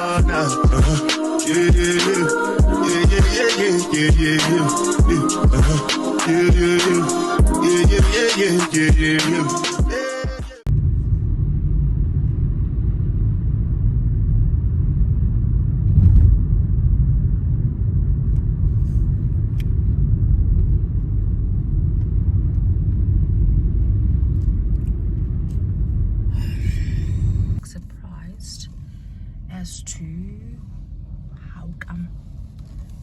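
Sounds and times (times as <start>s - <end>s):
car rumbling on the move: 10.7s - 33.0s.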